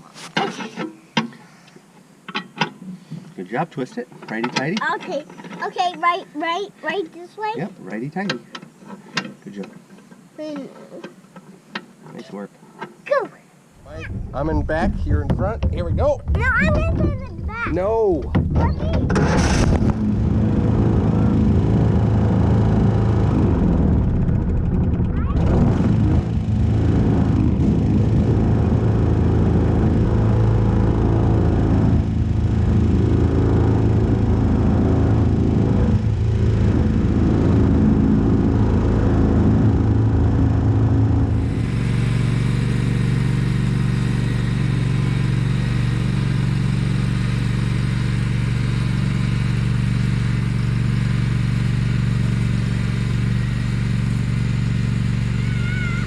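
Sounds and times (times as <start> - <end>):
vehicle engine running: 13.8 - 56.0.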